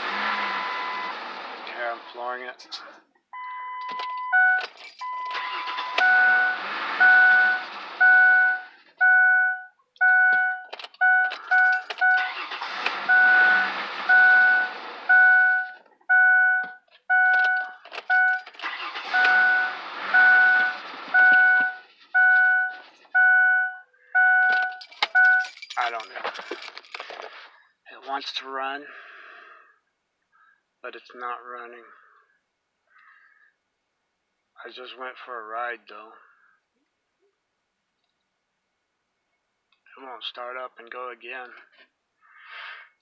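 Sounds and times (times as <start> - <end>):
starter cranking engine: 18.0 - 21.1.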